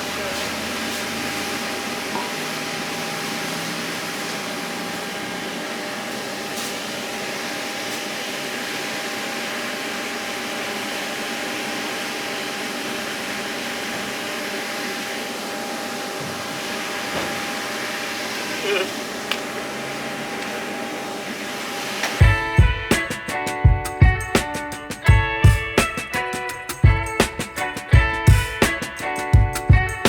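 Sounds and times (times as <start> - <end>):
electric fan motor whooshing: 0.0 - 22.4.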